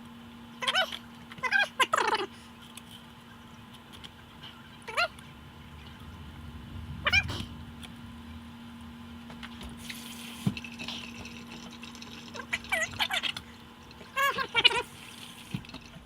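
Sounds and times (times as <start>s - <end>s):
steady low hum: 0.0s - 16.0s
running water: 9.3s - 16.0s.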